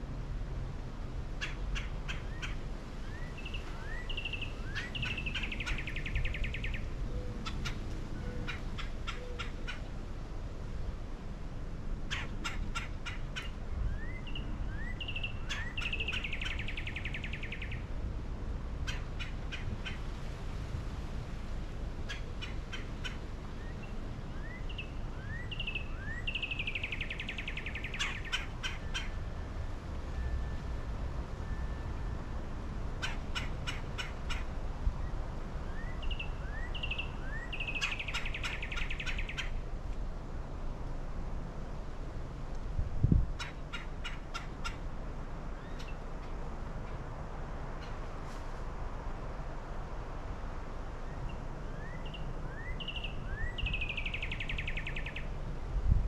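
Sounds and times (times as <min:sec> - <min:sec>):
bird singing: 0:01.4 - 0:09.9, 0:12.1 - 0:17.9, 0:22.1 - 0:29.2, 0:33.0 - 0:39.6, 0:51.1 - 0:55.3.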